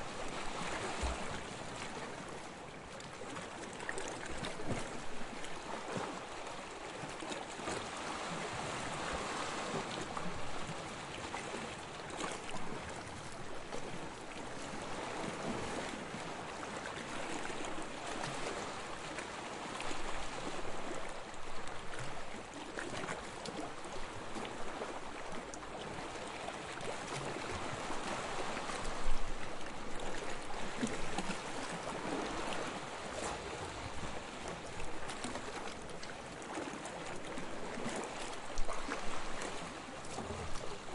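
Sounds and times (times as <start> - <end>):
waves lapping on sand: 0.0 - 40.9.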